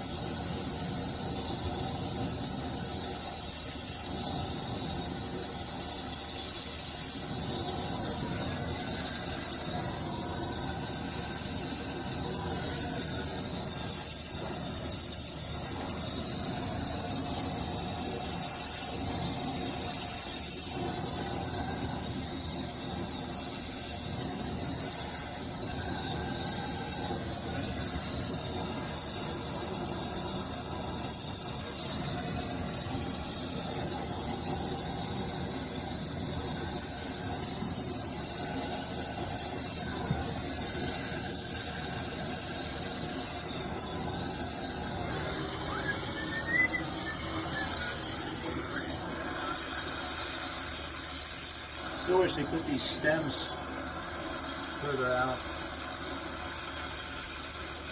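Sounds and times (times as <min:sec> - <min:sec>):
brazing torch flame hissing: 0:00.0 - 0:57.9.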